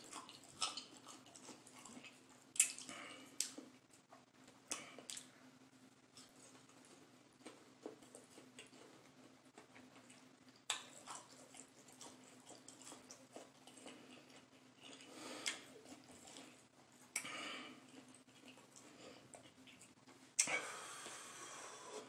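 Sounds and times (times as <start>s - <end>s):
wet mouth clicks chewing: 0.0s - 3.6s, 9.6s - 20.5s.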